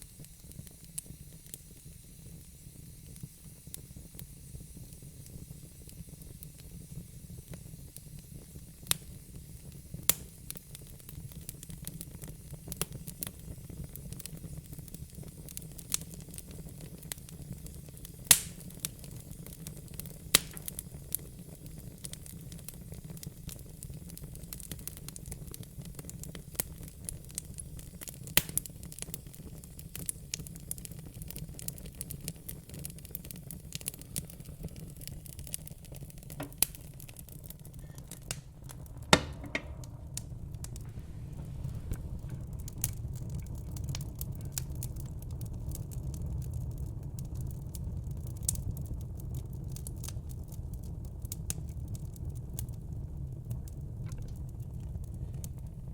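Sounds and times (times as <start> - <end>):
sharp pops from fire: 0.0 - 55.9
wood fire crackling: 0.0 - 55.9
low steady rumble: 35.3 - 48.7.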